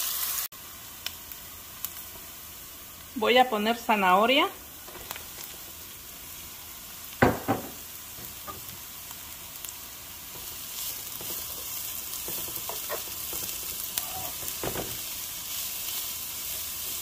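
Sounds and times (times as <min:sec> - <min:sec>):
vegetables sizzling in a frying pan: 0:00.0 - 0:17.0
spatula scraping and tapping pan: 0:10.3 - 0:15.0.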